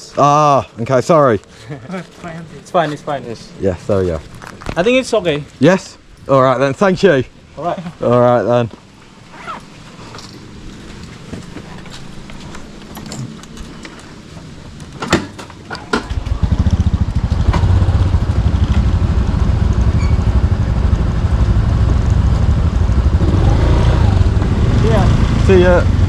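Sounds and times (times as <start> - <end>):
motorbike engine running: 15.1 - 26.0.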